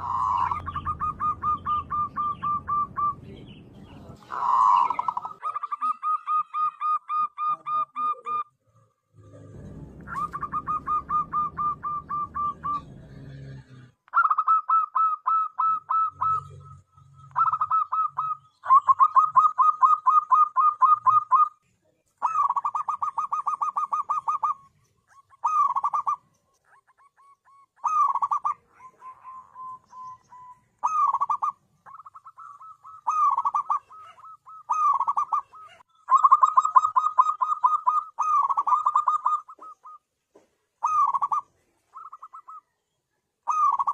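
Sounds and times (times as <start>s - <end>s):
dove cooing: 0.0s - 21.6s, 22.2s - 42.8s, 43.4s - 43.9s
low rumbling noise: 9.0s - 14.0s.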